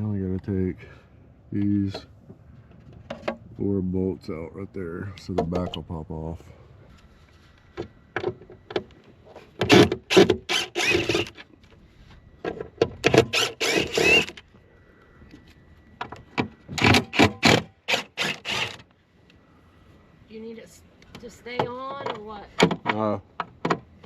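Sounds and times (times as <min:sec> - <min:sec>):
power drill whining: 0:09.7 - 0:11.4, 0:13.1 - 0:14.4, 0:16.8 - 0:18.9.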